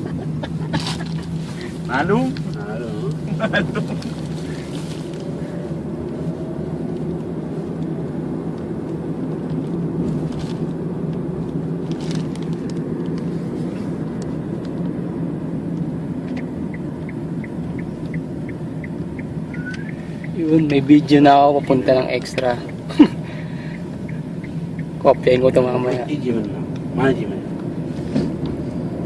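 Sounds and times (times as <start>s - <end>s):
road noise: 0.0s - 29.0s
vehicle engine drone: 0.0s - 29.0s
rapid regular ticking: 16.4s - 25.3s.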